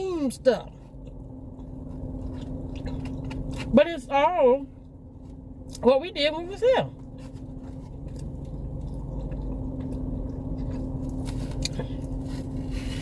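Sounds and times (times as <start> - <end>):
car cabin hum: 0.0 - 13.0
person chewing food: 0.7 - 3.8, 7.0 - 13.0.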